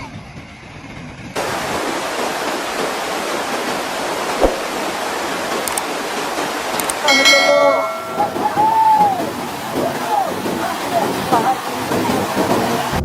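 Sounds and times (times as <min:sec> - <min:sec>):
loud rush of water: 0:01.4 - 0:13.0
brief thump: 0:04.4 - 0:04.7.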